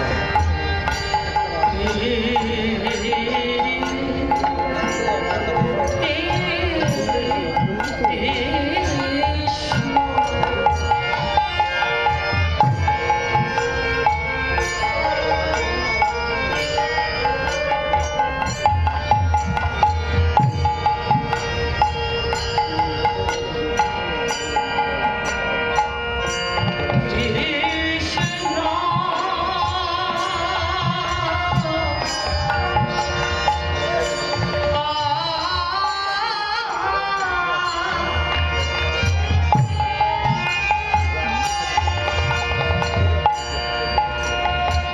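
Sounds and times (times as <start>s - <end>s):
hand drum rhythm: 0.0s - 35.1s
devotional music: 0.0s - 44.9s
high percussion strokes: 0.0s - 44.9s
sustained melodic instruments: 0.0s - 44.9s.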